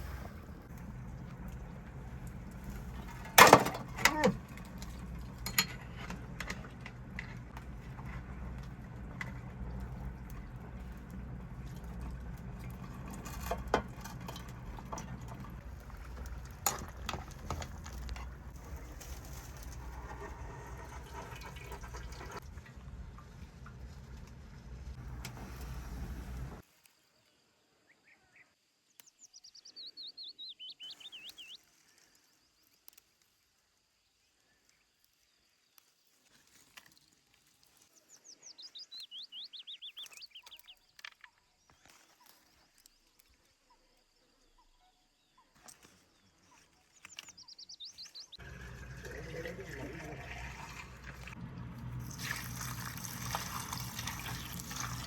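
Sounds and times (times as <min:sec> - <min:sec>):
running water: 0:00.0 - 0:26.6, 0:48.4 - 0:55.0
songbird trilling: 0:29.1 - 0:31.6, 0:38.2 - 0:40.8.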